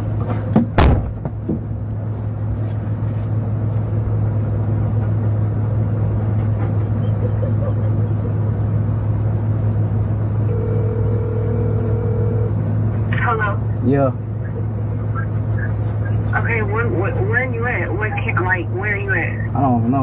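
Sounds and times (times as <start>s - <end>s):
car engine idling drone: 0.0s - 20.0s
sharp knocks: 0.3s - 1.7s.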